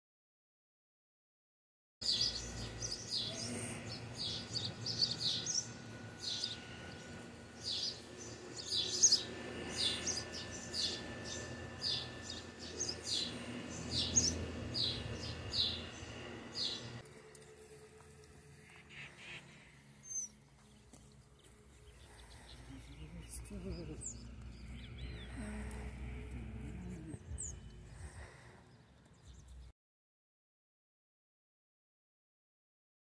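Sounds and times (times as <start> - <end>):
small birds chirping: 2.0 - 17.0, 18.6 - 29.7
faint low hum: 2.0 - 29.7.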